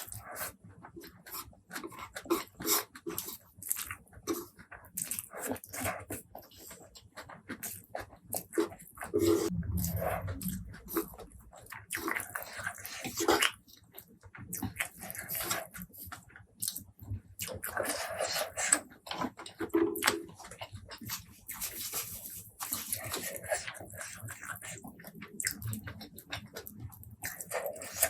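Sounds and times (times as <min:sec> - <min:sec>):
chewing and smacking: 0:00.0 - 0:28.0.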